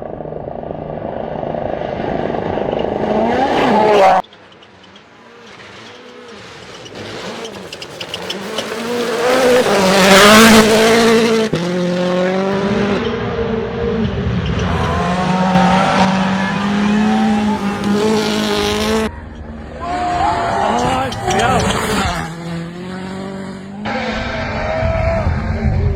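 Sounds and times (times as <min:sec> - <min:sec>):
rally car engine revving: 0:00.0 - 0:25.9
tyres on gravel: 0:02.8 - 0:12.5.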